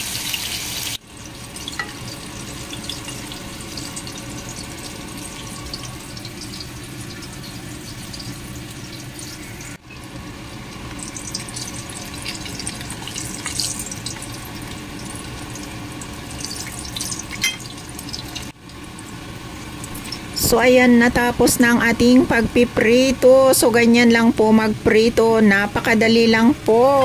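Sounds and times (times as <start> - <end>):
pork chop sizzling in oil: 0.0 - 20.8.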